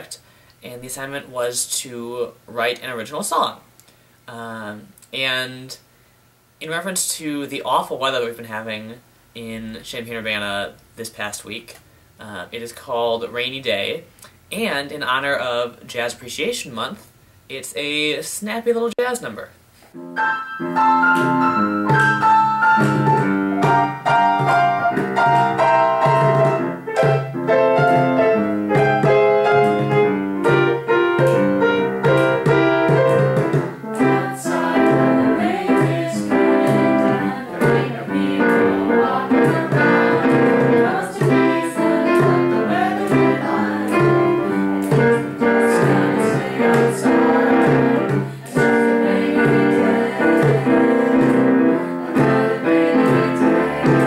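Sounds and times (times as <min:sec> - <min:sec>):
piano jazz music: 0:20.0 - 0:54.0.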